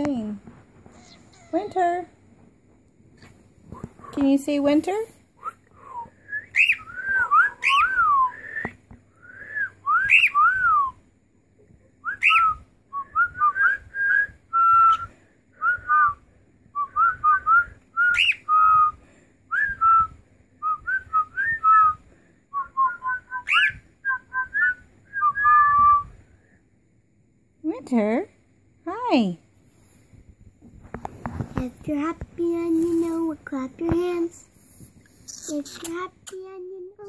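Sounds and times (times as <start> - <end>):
cockatiel whistling: 5.4 - 11.0, 12.0 - 15.1, 16.8 - 19.0, 22.6 - 26.1.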